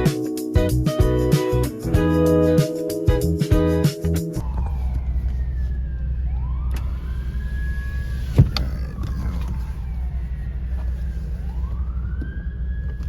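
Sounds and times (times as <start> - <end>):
low car rumble: 4.4 - 13.0
police siren wailing: 4.4 - 13.0.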